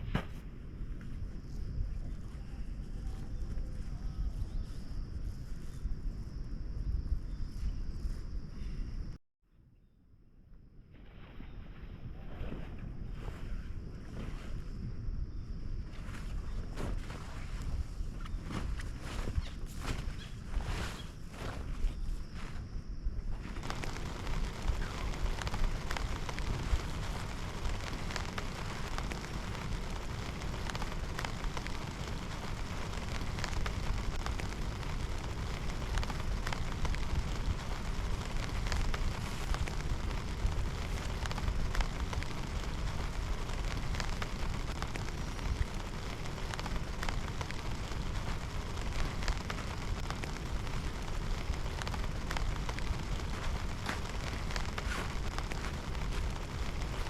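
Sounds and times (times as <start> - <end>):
steady low rumble: 22.2 - 57.0
heavy rain: 23.6 - 57.0
raindrops tapping hard surface: 23.6 - 57.0.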